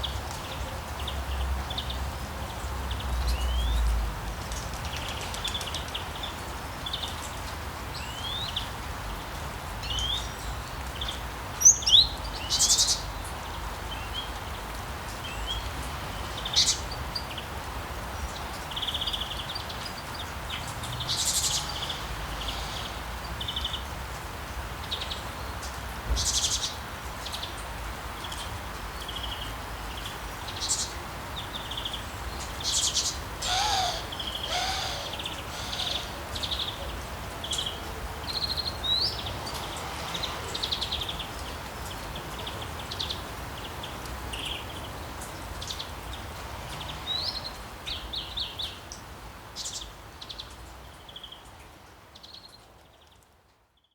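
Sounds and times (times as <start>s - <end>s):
songbirds chirping and trilling: 0.0s - 53.9s
sea waves: 33.4s - 36.6s.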